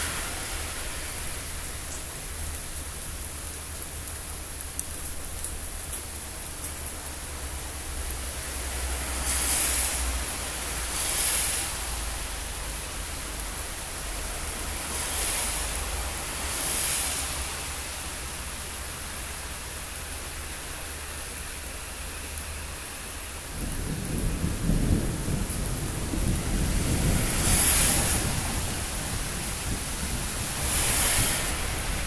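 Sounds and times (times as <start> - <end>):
heavy rain hiss: 0.0 - 32.0
thunder rumbling: 23.5 - 32.0.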